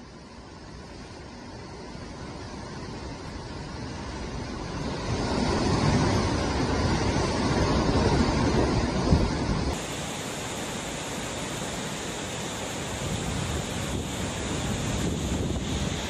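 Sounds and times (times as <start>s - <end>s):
strong wind gusting: 3.6s - 16.0s
wind buffeting microphone: 3.7s - 9.9s, 11.0s - 16.0s.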